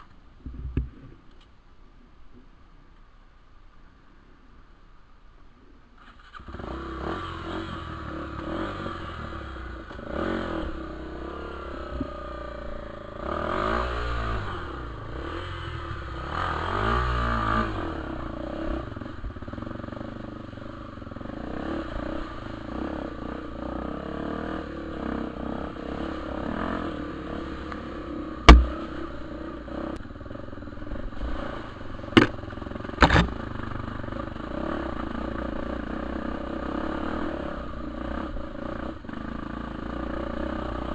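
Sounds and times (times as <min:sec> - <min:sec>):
motorcycle engine revving: 0:06.0 - 0:40.9
sharp knocks: 0:28.5 - 0:28.9, 0:33.0 - 0:33.4.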